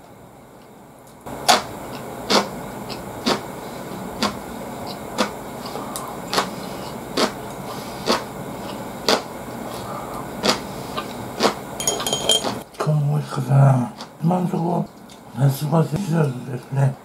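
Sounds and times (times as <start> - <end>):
crunchy vegetable chewing: 1.4 - 11.6.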